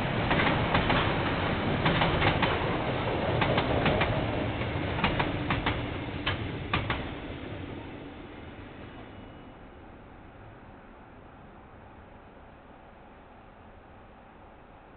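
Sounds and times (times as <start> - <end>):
train wheels clacking over rail joints: 0.0 - 7.2
train wagons rumbling: 0.0 - 9.6.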